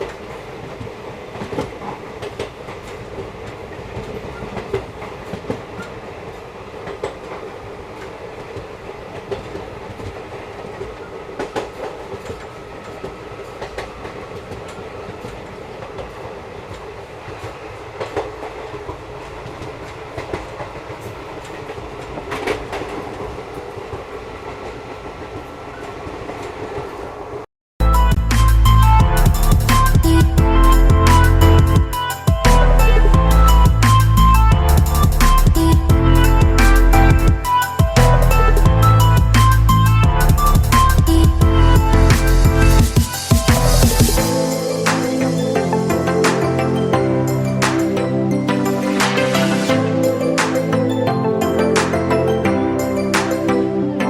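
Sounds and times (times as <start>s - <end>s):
wheels clicking over rail joints: 0.0s - 27.2s
train rumbling: 0.0s - 54.0s.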